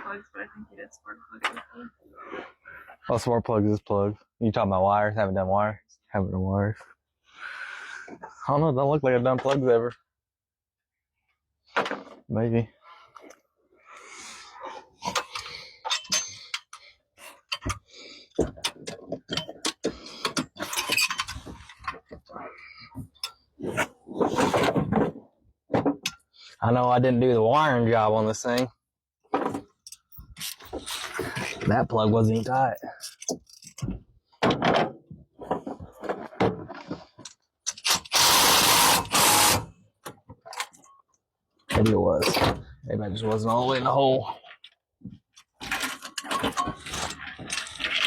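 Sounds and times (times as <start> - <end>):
knocks and clunks: 17.5 - 26.2, 29.3 - 37.3.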